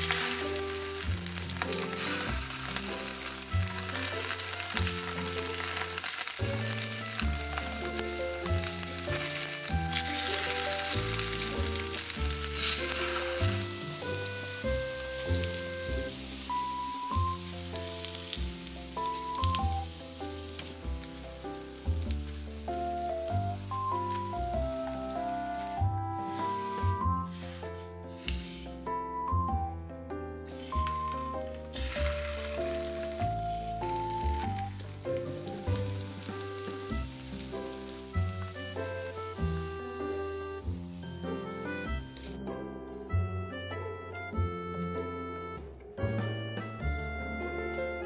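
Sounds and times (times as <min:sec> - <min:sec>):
oil popping and crackling: 0:00.0 - 0:26.0, 0:30.5 - 0:42.4
food sizzling in hot oil: 0:00.0 - 0:27.4, 0:30.5 - 0:42.4
light background music: 0:00.0 - 0:48.0.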